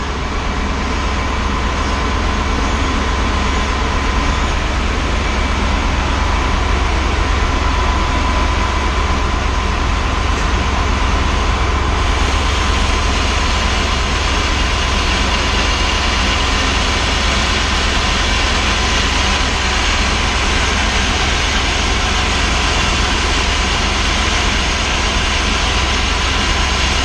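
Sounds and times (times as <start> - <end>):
machine rumbling: 0.0 - 27.0
loud steam hiss: 11.2 - 27.0.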